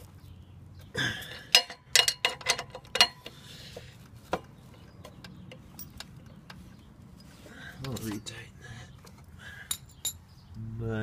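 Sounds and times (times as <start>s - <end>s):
wrench clanking on metal bolt: 1.3s - 3.3s.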